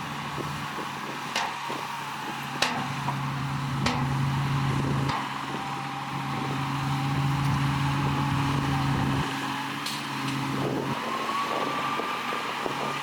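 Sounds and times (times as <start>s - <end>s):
heavy diesel engine running: 0.0s - 13.0s
sharp metallic knocks: 2.6s - 2.9s, 3.8s - 4.2s.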